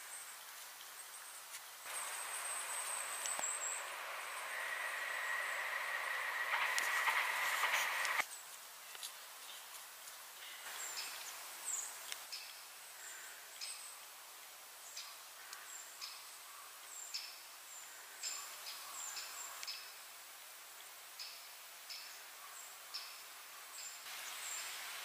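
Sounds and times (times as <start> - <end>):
faint steady hiss: 0.0 - 25.0
small birds chirping: 0.1 - 8.5.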